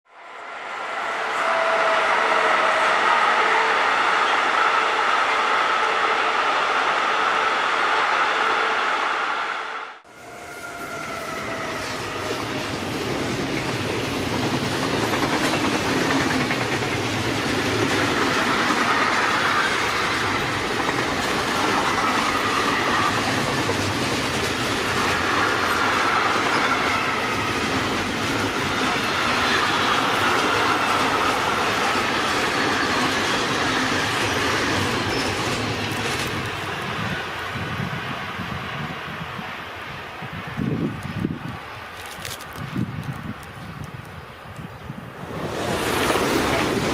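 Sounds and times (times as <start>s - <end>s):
train wheels clattering over rails: 11.8s - 37.3s
wheels squealing: 24.8s - 36.3s.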